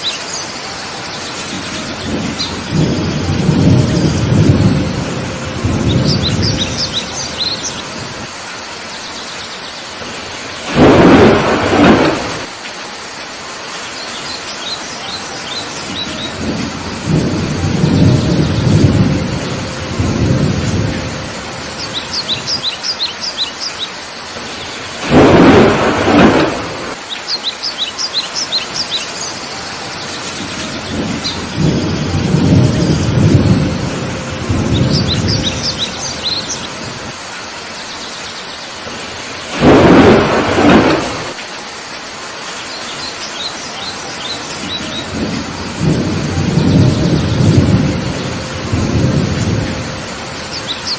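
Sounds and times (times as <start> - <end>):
heavy rain falling: 0.0 - 50.9
thunder rumbling: 0.8 - 8.5, 10.0 - 12.6, 15.6 - 23.0, 24.3 - 27.0, 29.6 - 37.6, 38.8 - 41.5, 44.2 - 50.9
sharp thunderclaps: 1.4 - 8.3, 10.0 - 12.6, 15.8 - 22.7, 25.0 - 27.0, 30.3 - 37.2, 38.8 - 41.4, 44.5 - 50.9
bird chirping: 5.8 - 8.0, 21.7 - 24.8, 27.0 - 29.4, 34.7 - 37.0, 50.4 - 50.9.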